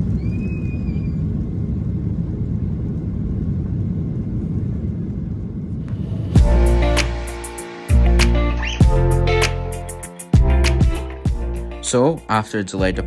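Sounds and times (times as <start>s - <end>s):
jet engines rumbling in cabin: 0.0s - 6.3s
music: 5.9s - 13.0s.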